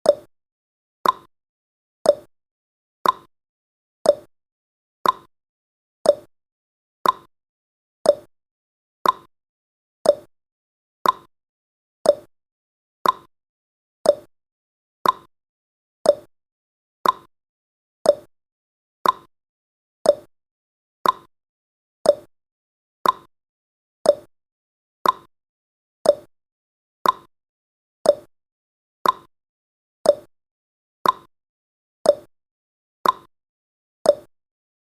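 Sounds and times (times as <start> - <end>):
clock ticking: 1.0 - 1.3, 5.0 - 5.3, 7.0 - 7.3, 8.1 - 8.3, 9.0 - 9.3, 10.1 - 10.3, 11.0 - 11.3, 12.1 - 12.3, 13.0 - 13.3, 14.1 - 14.3, 15.0 - 15.3, 16.1 - 16.3, 17.0 - 17.3, 18.1 - 18.3, 19.0 - 19.3, 20.1 - 20.3, 21.0 - 21.3, 22.1 - 22.3, 23.0 - 23.3, 24.1 - 24.3, 25.0 - 25.3, 26.0 - 26.3, 27.0 - 27.3, 28.1 - 28.3, 29.0 - 29.3, 30.1 - 30.3, 31.0 - 31.3, 32.1 - 32.3, 33.0 - 33.3, 34.1 - 34.3.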